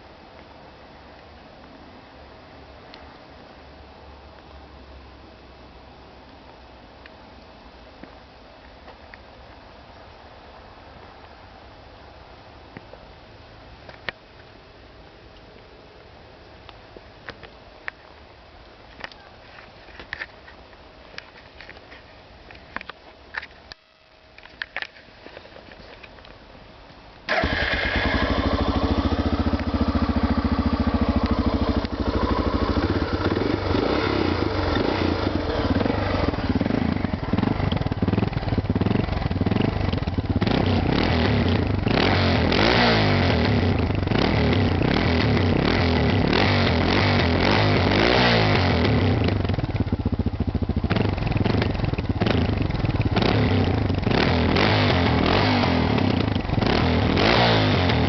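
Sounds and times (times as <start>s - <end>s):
motorcycle engine idling and revving: 27.3s - 58.0s
motorcycle engine starting: 27.3s - 58.0s.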